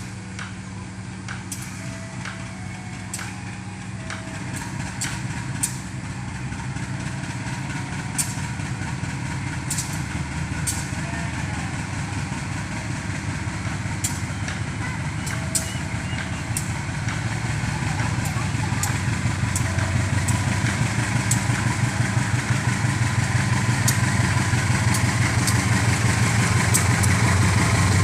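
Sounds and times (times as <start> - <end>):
diesel locomotive engine idling: 0.0 - 28.0
sharp clicks: 24.9 - 27.3.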